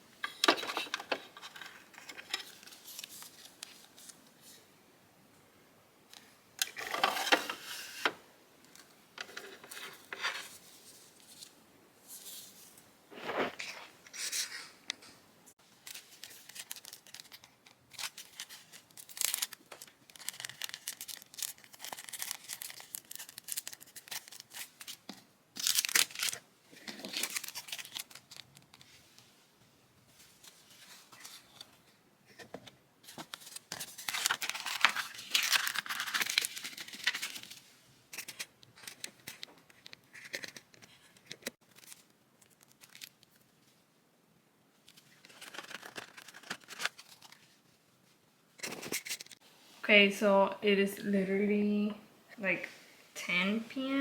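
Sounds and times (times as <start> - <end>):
packaging tearing and crinkling: 15.9 - 25.0, 25.6 - 26.4, 27.0 - 28.7, 33.3 - 37.5, 41.3 - 43.3, 45.3 - 47.4.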